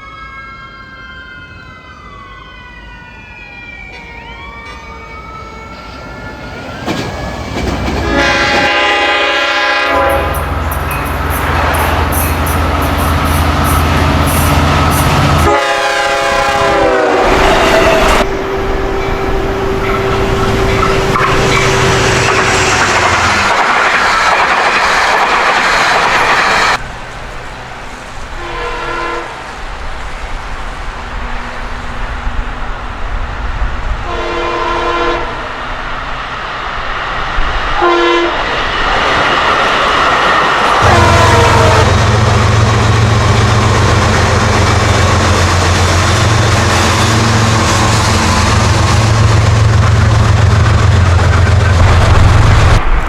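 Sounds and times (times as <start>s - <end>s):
train wheels on rails: 3.8s - 53.0s
locomotive engine running: 6.9s - 34.0s, 39.2s - 53.0s
train horn: 7.9s - 23.5s, 28.2s - 29.5s, 33.9s - 35.6s, 37.7s - 38.5s, 40.7s - 52.6s.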